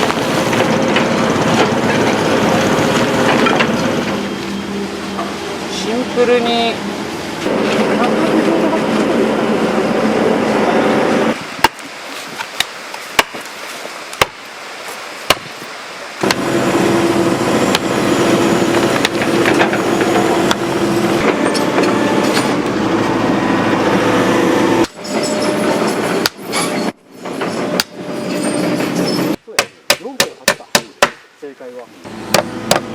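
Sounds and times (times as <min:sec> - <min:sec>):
excavator engine and hydraulics whining: 0:00.0 - 0:13.0, 0:15.8 - 0:29.4, 0:32.0 - 0:32.9
sharp knocks: 0:15.3 - 0:15.6, 0:29.5 - 0:31.3, 0:32.3 - 0:32.9.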